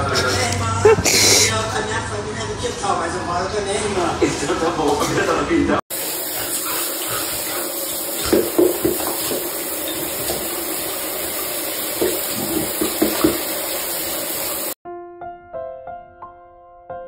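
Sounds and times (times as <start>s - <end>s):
water running from tap: 5.9s - 14.8s
soft piano music: 14.9s - 17.0s.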